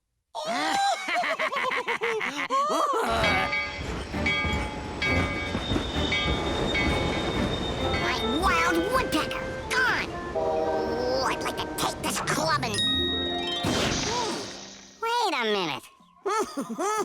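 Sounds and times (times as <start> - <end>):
cartoon train rumble: 3.1 - 12.8.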